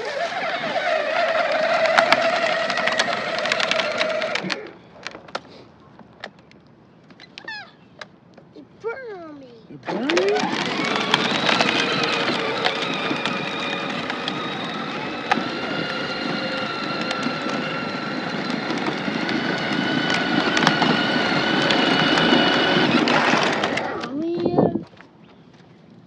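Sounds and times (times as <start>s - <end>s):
quad bike engine running: 0.0s - 4.7s, 9.8s - 24.5s.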